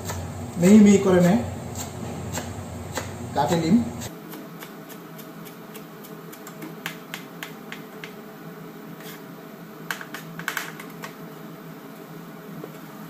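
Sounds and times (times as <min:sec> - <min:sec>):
knife chopping on cutting board: 0:01.2 - 0:03.6.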